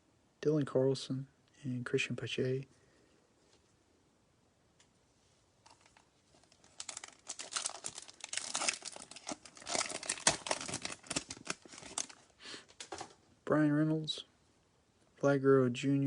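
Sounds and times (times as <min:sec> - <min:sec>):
foil wrapper crinkling and tearing: 0:05.7 - 0:13.1.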